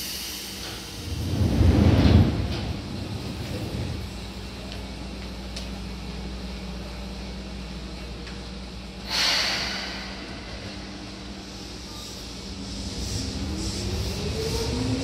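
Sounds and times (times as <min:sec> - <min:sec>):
compressed air hiss: 0:00.0 - 0:01.2, 0:09.0 - 0:12.3
train equipment low hum: 0:00.0 - 0:15.0.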